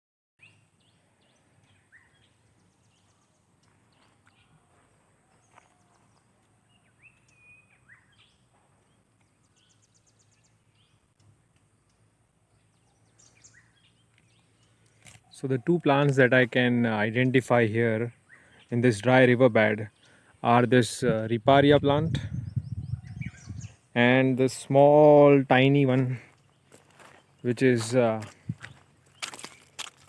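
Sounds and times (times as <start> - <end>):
bird chirps and calls: 6.7 - 11.1, 11.9 - 15.6, 21.8 - 24.2.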